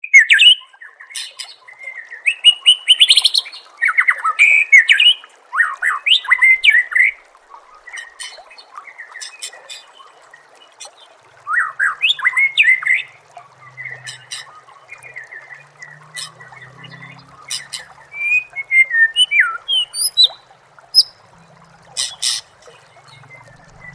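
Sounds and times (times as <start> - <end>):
bird singing whistles and trills: 0.0 - 7.2, 11.5 - 21.2.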